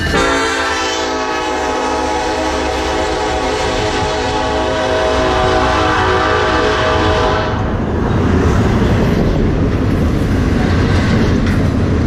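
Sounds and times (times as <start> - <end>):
train horn: 0.0 - 7.7
train wheels clickety-clack: 7.6 - 12.0.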